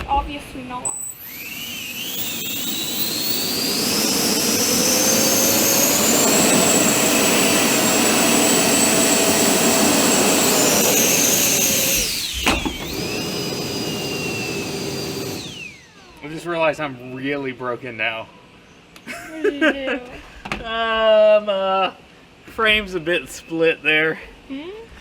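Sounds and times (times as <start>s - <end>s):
electric ducted fans whining: 0.6s - 17.4s.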